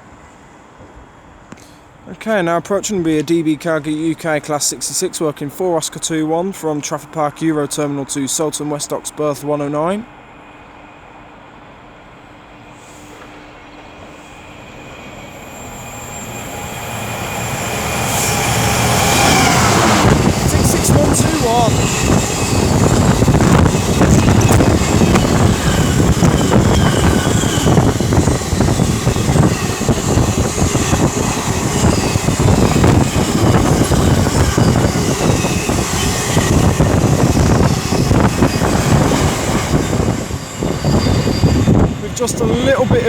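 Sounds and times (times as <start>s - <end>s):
freight train rumbling over rails: 0.0s - 43.0s
wind noise: 17.0s - 43.0s.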